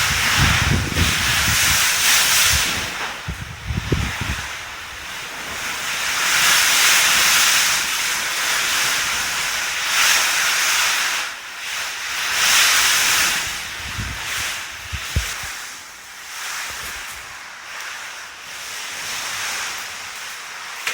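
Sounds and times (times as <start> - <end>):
strong wind rushing: 0.0 - 6.7, 13.1 - 15.6.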